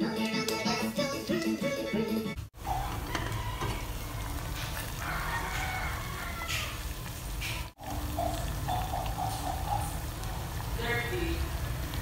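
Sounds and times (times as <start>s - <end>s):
pot boiling: 0.2s - 12.0s
chickens clucking: 2.6s - 4.0s, 7.4s - 10.5s.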